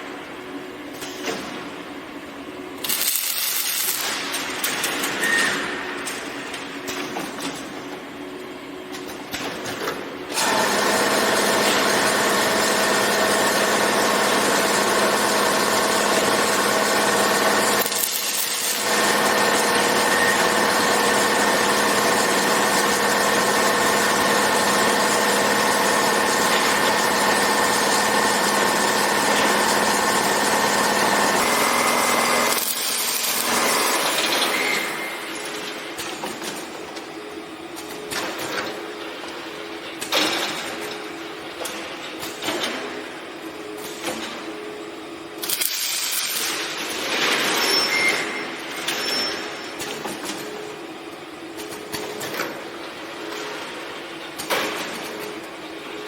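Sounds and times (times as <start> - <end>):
welding machine tones over hiss: 2.8 - 6.2, 10.4 - 35.6, 45.4 - 49.9.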